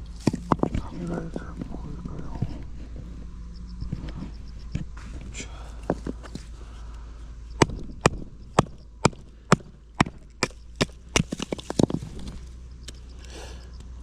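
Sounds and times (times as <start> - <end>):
wood splintering: 0.0 - 1.2, 7.6 - 12.5.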